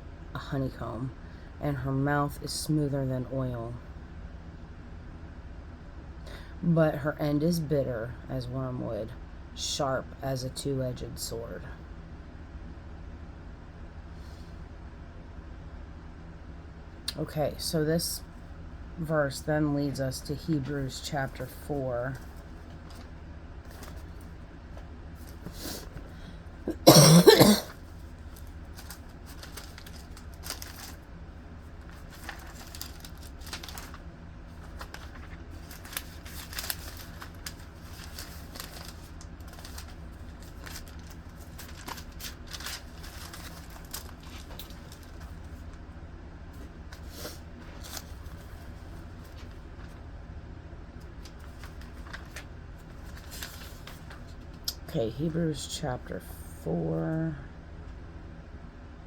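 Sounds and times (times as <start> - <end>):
thin pages being leafed through: 21.5 - 26.1, 27.9 - 45.8, 46.6 - 50.0, 51.1 - 54.5
person coughing: 26.7 - 27.8.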